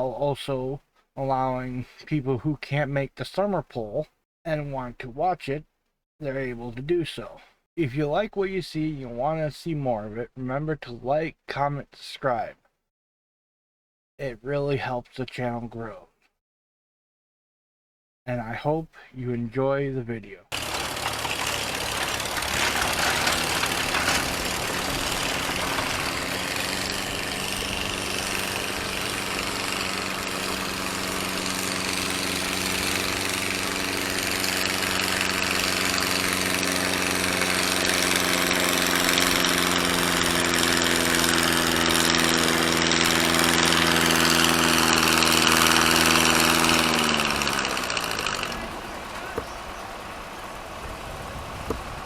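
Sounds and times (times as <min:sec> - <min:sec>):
tractor engine running: 0:20.5 - 0:52.0.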